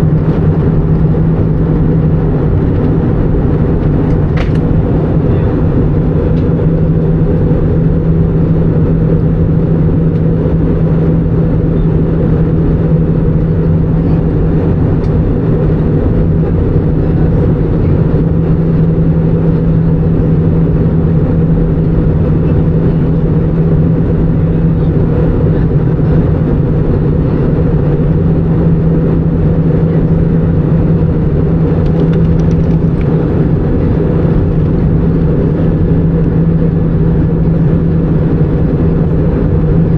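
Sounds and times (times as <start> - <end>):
aircraft cabin engine drone: 0.0 - 39.9
constant low hum: 0.0 - 39.9.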